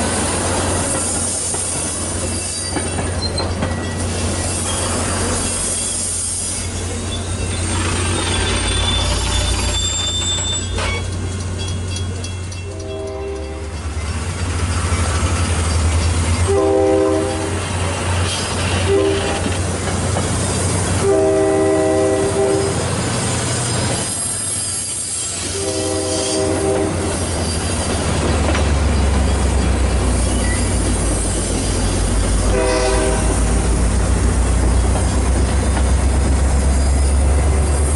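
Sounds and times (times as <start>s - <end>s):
wheels rolling on rails: 0.0s - 16.5s, 27.1s - 32.6s
locomotive air horn blasts: 12.6s - 13.7s, 16.4s - 17.7s, 18.8s - 19.5s, 21.0s - 22.8s, 25.4s - 27.2s, 32.4s - 33.6s.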